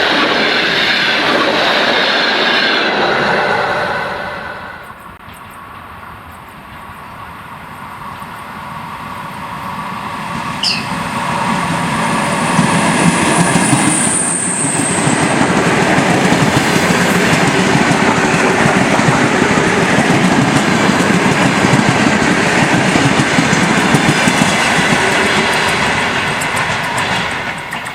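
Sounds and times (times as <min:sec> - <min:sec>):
train passing rumble: 0:00.0 - 0:27.9
high chirp: 0:10.6 - 0:11.0.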